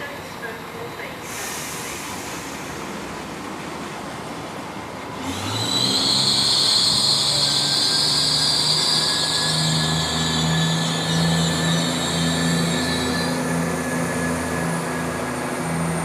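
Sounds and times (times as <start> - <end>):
train wheels on rails: 0.0 - 16.0
high-pitched whine: 5.2 - 16.0.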